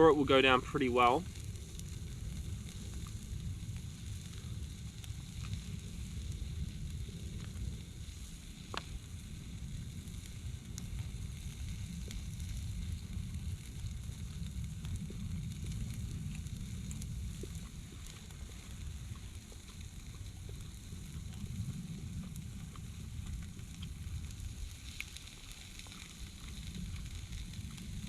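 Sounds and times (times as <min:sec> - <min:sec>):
steady low rumble: 0:00.0 - 0:28.0
small pops: 0:07.4 - 0:09.0.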